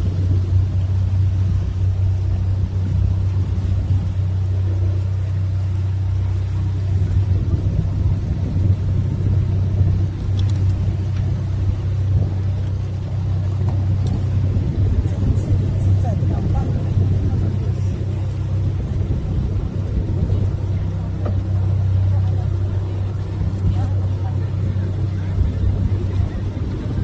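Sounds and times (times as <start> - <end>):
boat engine humming: 0.0 - 27.0
water noise: 0.0 - 27.0
wind noise: 0.0 - 27.0.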